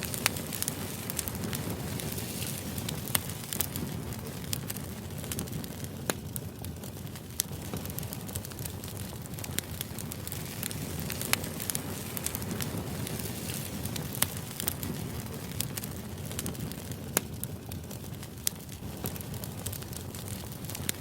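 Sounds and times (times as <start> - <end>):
sharp crackles and pops: 0.0 - 21.0.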